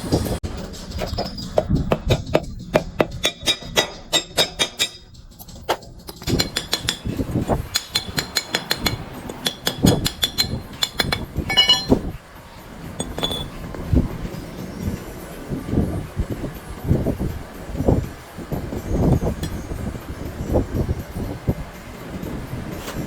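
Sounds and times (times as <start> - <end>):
metal tools clinking: 11.5 - 12.1, 13.0 - 13.7.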